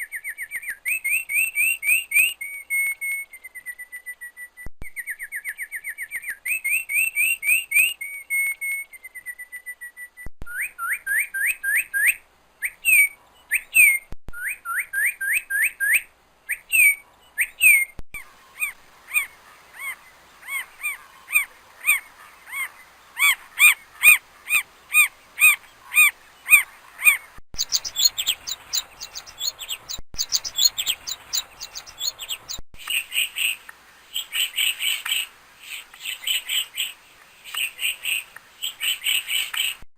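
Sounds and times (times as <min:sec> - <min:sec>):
faint hiss: 0:00.0 - 0:39.8
songbird singing: 0:00.0 - 0:39.8.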